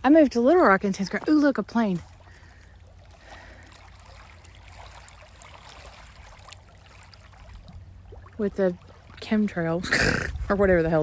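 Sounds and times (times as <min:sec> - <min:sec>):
wind rumble on microphone: 0:07.5 - 0:11.0.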